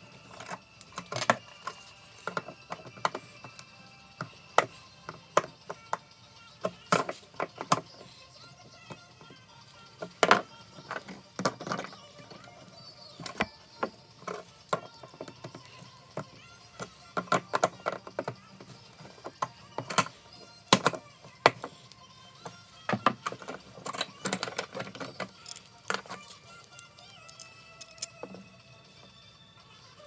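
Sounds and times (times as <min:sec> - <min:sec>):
metal tools clicking and clinking: 0:22.4 - 0:28.4.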